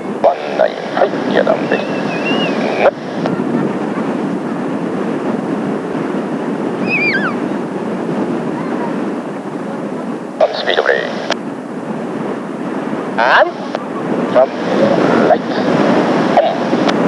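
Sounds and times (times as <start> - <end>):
radio transmission hiss: 0.0 - 5.4, 10.0 - 11.5, 13.0 - 17.0
gusty wind buffeting microphone: 0.0 - 17.0
whistled call falling in pitch: 1.7 - 2.6, 6.8 - 7.4.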